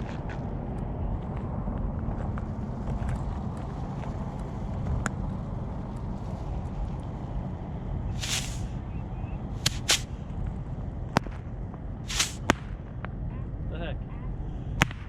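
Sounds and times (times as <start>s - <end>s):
fireworks cracking: 8.2s - 8.7s, 9.6s - 10.1s, 12.1s - 12.5s
firework hiss: 8.2s - 8.8s, 9.6s - 10.1s, 12.1s - 12.5s.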